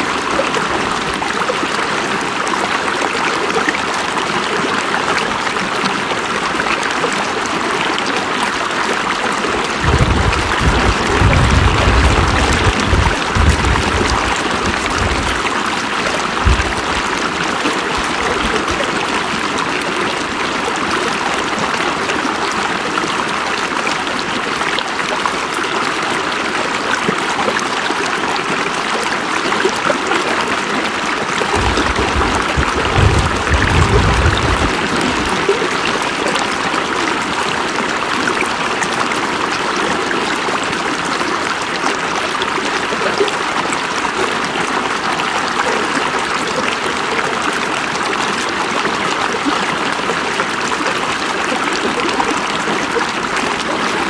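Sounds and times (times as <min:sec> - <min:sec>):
river rushing over rocks: 0:08.6 - 0:21.5, 0:31.3 - 0:38.4
short low rumbles: 0:09.5 - 0:18.9, 0:31.5 - 0:35.7.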